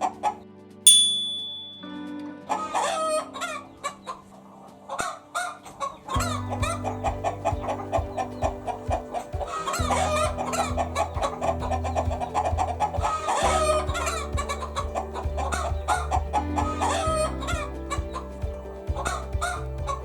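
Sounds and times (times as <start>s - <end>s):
background music: 0.0s - 20.0s
chickens clucking: 2.8s - 18.2s.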